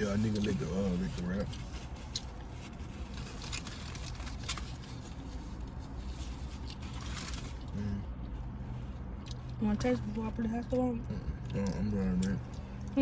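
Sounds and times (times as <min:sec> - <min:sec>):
low steady hum: 0:00.0 - 0:13.0
food wrapper crinkling: 0:00.2 - 0:07.7.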